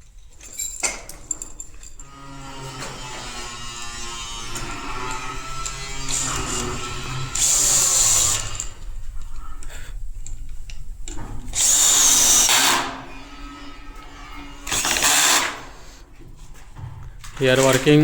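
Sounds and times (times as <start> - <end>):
handling clatter: 0.0 - 2.1
power tool motor whine: 2.1 - 8.9, 11.5 - 16.0.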